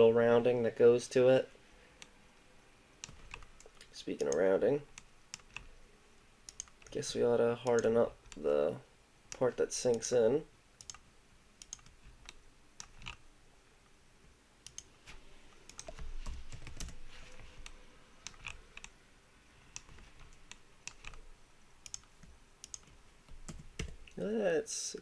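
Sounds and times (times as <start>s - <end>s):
computer keyboard typing: 3.0s - 5.7s, 6.5s - 7.0s, 10.8s - 11.0s, 11.6s - 13.2s, 15.7s - 19.0s, 19.8s - 21.2s, 21.8s - 24.1s.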